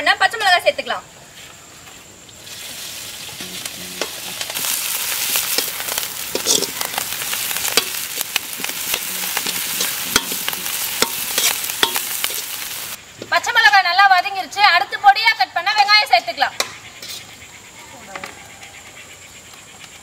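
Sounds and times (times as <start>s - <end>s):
food sizzling in hot oil: 2.4s - 13.0s
ladle scraping a pan: 3.2s - 13.0s, 17.0s - 17.3s.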